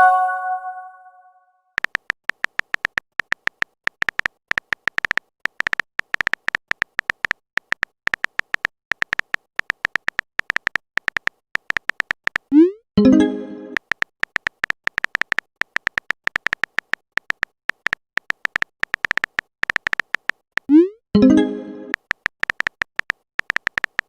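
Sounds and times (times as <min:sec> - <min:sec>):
phone keyboard tapping clicks: 0:01.8 - 0:12.6, 0:13.7 - 0:20.8, 0:21.9 - 0:24.0.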